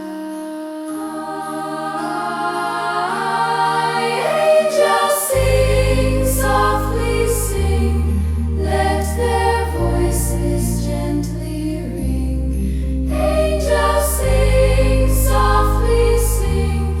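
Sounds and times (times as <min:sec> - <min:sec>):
sustained backing music: 0:00.1 - 0:17.0
wordless choir singing: 0:00.5 - 0:12.5, 0:13.1 - 0:17.0
deep bass notes: 0:05.4 - 0:17.0.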